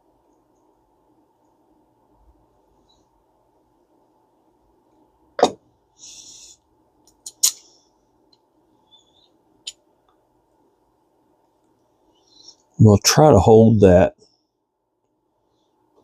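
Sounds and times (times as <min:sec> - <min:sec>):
small metal parts clicking: 0:07.1 - 0:07.7.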